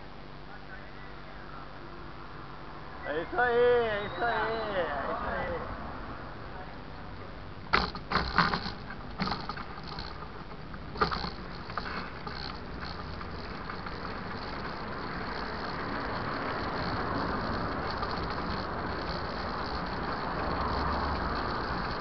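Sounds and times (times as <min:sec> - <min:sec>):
bike rattling and knocking: 0:07.7 - 0:22.0
tyres and wind rushing: 0:07.7 - 0:22.0.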